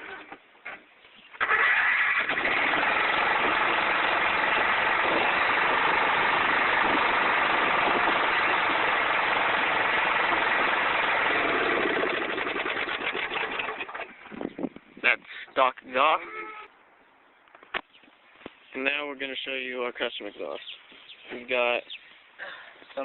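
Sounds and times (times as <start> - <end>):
mower engine running: 1.4 - 14.2.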